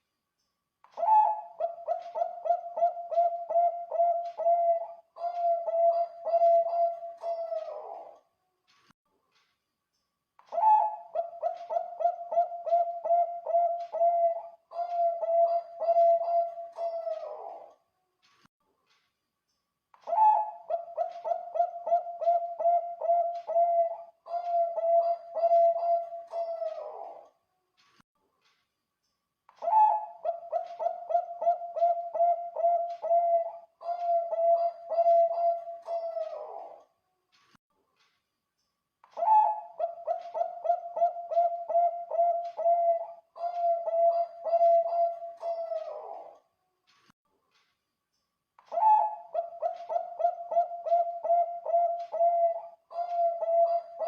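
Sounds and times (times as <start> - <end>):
dove cooing rapidly: 1.0 - 8.2, 10.5 - 17.7, 20.1 - 27.2, 29.6 - 36.8, 39.2 - 46.4, 48.7 - 54.0.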